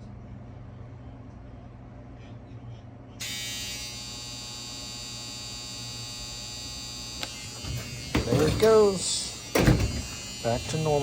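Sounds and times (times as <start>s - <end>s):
dishwasher pump motor buzzing: 3.2s - 11.0s.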